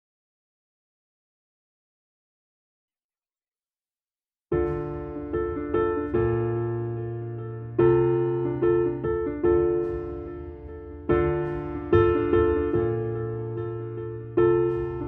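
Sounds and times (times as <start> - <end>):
slow piano chords: 4.5 - 15.0.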